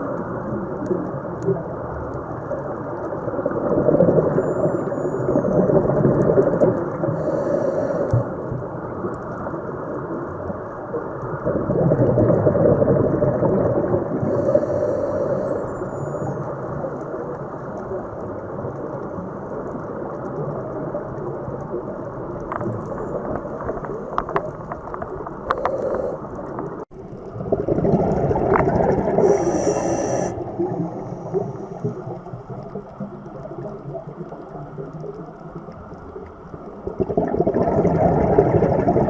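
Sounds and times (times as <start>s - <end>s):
underwater rushing rumble: 0.0s - 39.0s
high hiss: 7.2s - 8.2s, 14.3s - 15.8s, 25.5s - 26.3s, 29.2s - 30.4s.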